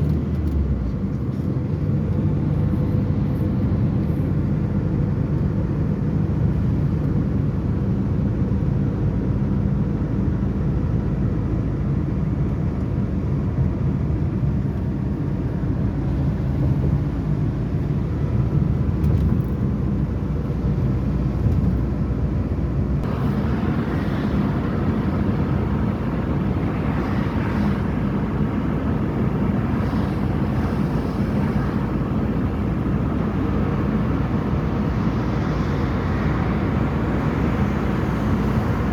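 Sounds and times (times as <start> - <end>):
steady low rumble: 9.4 - 38.9.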